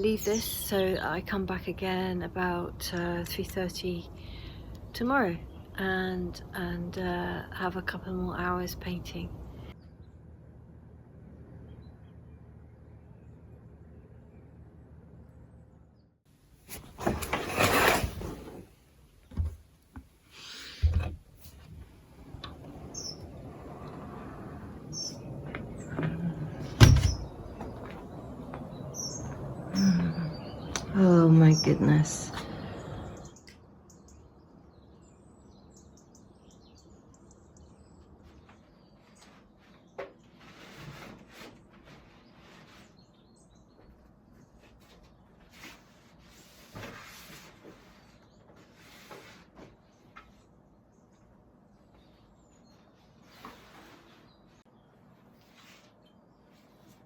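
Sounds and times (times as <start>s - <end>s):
bird chirping: 22.9s - 23.4s, 24.8s - 40.0s.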